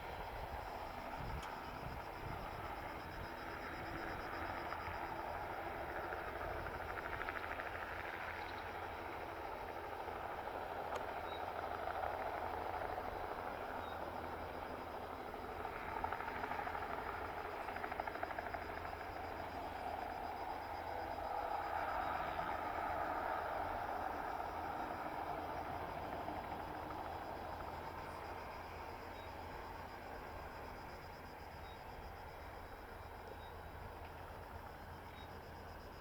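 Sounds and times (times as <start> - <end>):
helicopter rotor beat: 0.0 - 35.7
helicopter turbine whine: 0.0 - 36.0.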